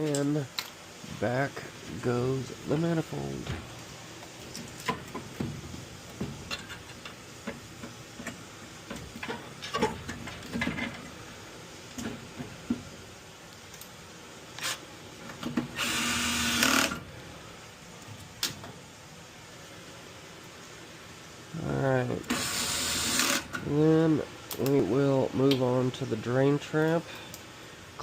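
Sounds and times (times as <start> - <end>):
cordless drill driving screw: 15.8 - 17.0, 22.3 - 23.5.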